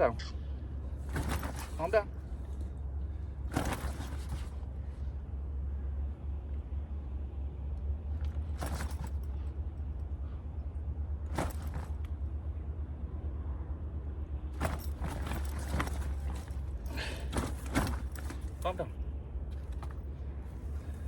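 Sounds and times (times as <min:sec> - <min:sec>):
rustling and scuffling: 0:00.9 - 0:05.0, 0:08.2 - 0:09.5, 0:11.2 - 0:12.2, 0:14.6 - 0:18.9, 0:19.5 - 0:21.0.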